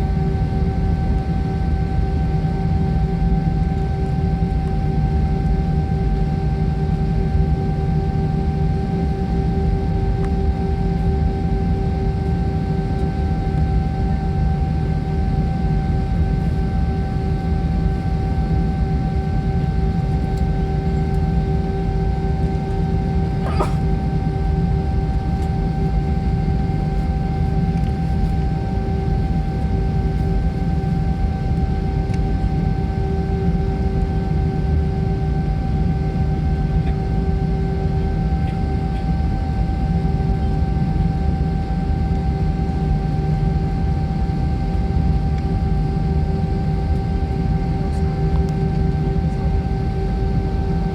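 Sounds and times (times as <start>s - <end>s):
airliner cabin rumble: 14.7s - 41.6s.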